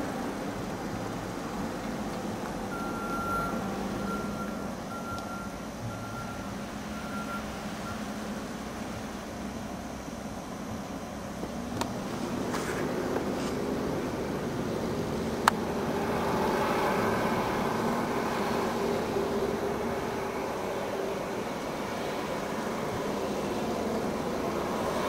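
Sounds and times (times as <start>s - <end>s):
low engine hum: 0.0s - 25.0s
vehicle backup beeper: 2.7s - 8.2s.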